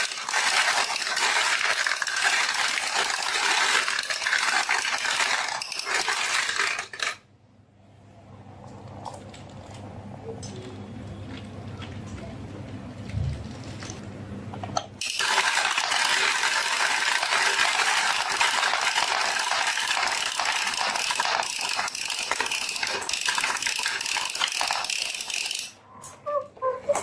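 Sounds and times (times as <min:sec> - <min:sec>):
marbles clattering down a run: 0:00.0 - 0:07.2, 0:15.0 - 0:25.8.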